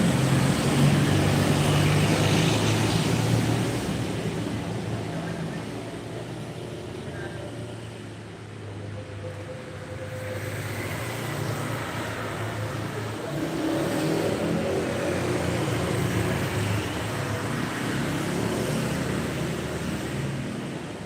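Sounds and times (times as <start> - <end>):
vehicle engine and road noise: 0.0 - 21.0.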